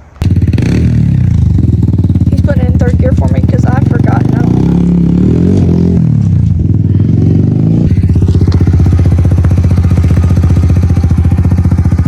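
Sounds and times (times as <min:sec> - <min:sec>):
dirt bike engine running: 0:00.2 - 0:12.0.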